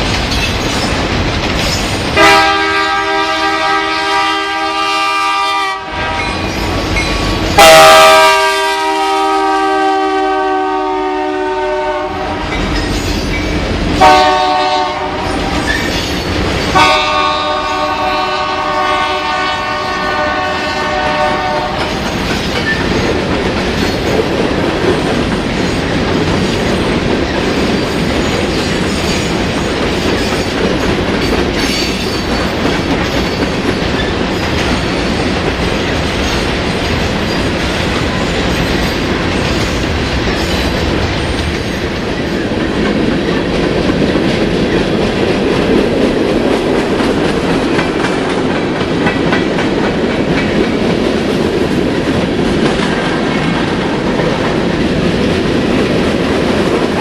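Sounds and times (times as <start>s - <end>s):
wheels clacking over rail joints: 0.0s - 3.4s, 20.8s - 57.0s
train rolling past rumble: 0.0s - 57.0s
locomotive air horn: 2.2s - 6.4s, 7.6s - 12.5s, 14.0s - 15.4s, 16.8s - 22.0s.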